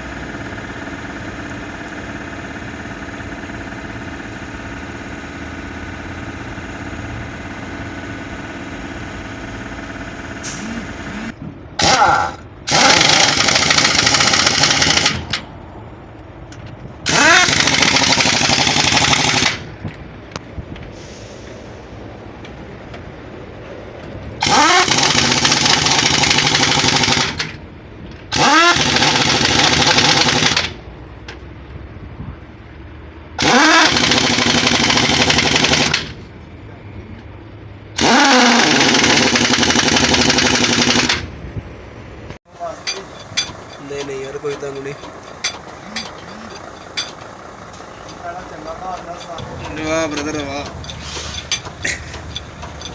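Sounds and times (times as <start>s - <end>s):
pneumatic impact wrench rattling: 11.8s - 15.5s, 17.0s - 19.8s, 24.4s - 27.6s, 28.2s - 30.8s, 33.4s - 36.3s, 38.0s - 41.3s, 42.7s - 52.9s.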